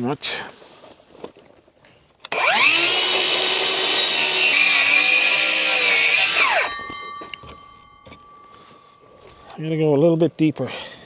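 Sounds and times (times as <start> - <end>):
circular saw cutting wood: 2.3 - 7.6.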